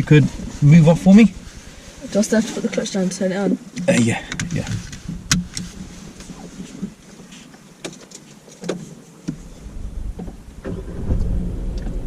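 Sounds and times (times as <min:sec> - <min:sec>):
car engine starting and rumbling: 0:00.0 - 0:07.4, 0:09.3 - 0:12.0.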